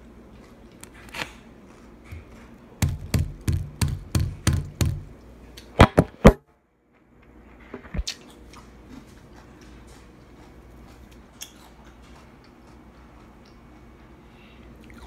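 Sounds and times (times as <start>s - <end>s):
knife chopping on cutting board: 2.1s - 5.1s
sharp knocks: 2.8s - 5.1s.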